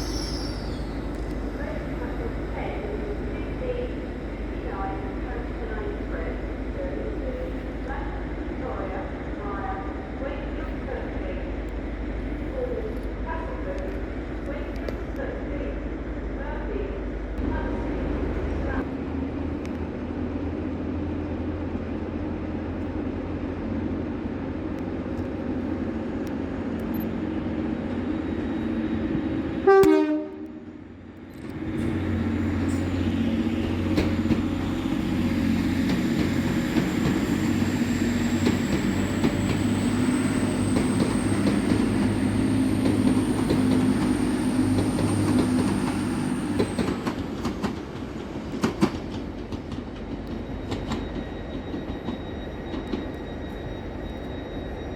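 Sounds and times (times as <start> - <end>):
train engine drone: 0.0 - 54.9
train horn blast: 29.6 - 30.7.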